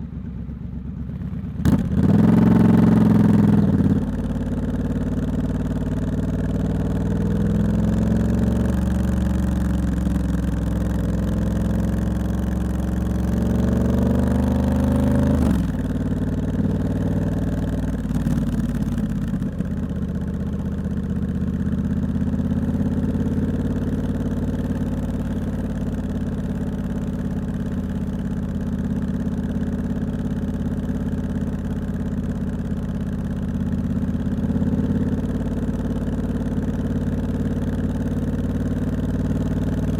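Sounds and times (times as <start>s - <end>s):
motorcycle engine idling: 0.0s - 39.9s
motorcycle engine accelerating: 1.0s - 39.9s.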